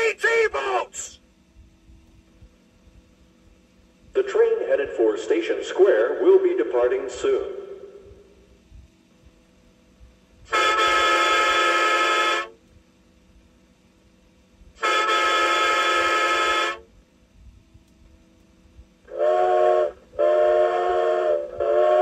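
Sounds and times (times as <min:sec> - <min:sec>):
lower-pitched horn blasts: 0:10.4 - 0:12.6, 0:14.8 - 0:16.9, 0:19.1 - 0:22.0
high-pitched horn blasts: 0:10.5 - 0:12.6, 0:14.8 - 0:16.9.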